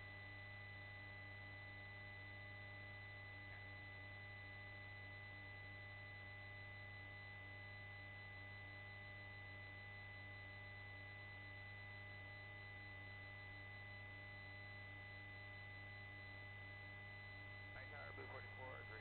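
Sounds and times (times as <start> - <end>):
faint intercom hum: 17.4 - 19.0.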